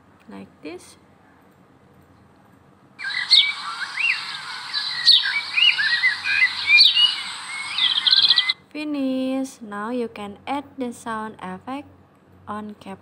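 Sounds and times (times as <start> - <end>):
steady hiss: 3.0 - 8.5
birds chirping and whistling: 3.0 - 8.6.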